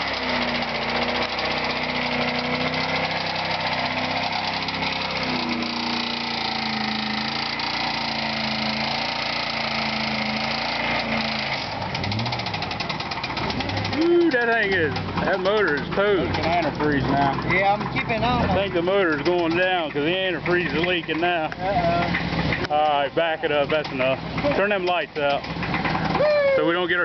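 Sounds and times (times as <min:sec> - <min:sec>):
car engine at high revs: 0:00.0 - 0:27.0
tires spinning: 0:00.0 - 0:27.0.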